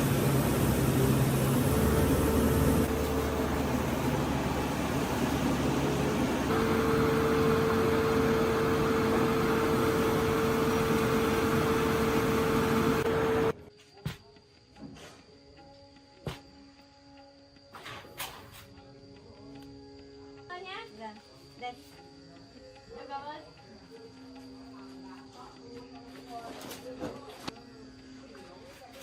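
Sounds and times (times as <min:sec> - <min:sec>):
rice milling machine running: 0:00.0 - 0:13.6
steady mechanical whine: 0:00.0 - 0:13.6.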